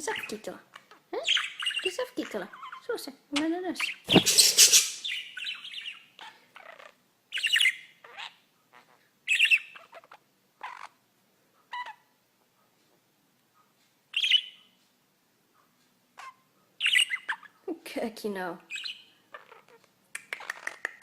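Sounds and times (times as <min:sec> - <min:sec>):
pet bird squawking and chirping: 0:00.2 - 0:03.0, 0:03.8 - 0:11.0, 0:11.7 - 0:12.1, 0:14.2 - 0:14.6, 0:16.2 - 0:17.6, 0:18.7 - 0:19.8.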